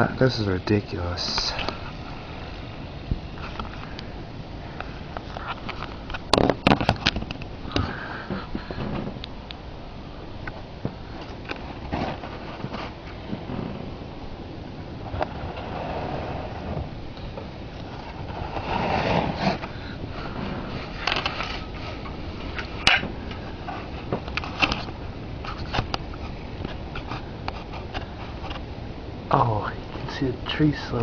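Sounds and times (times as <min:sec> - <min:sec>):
blizzard wind blowing: 0:00.0 - 0:31.0
handling noise clicks and scrapes: 0:04.8 - 0:09.6, 0:11.2 - 0:14.0, 0:15.0 - 0:28.7.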